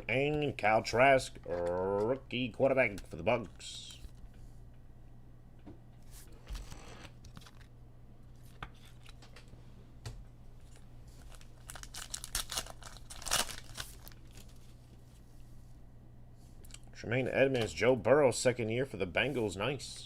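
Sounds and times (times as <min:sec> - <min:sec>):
steady low hum: 0:00.0 - 0:20.0
foil wrapper tearing and crinkling: 0:10.7 - 0:14.6.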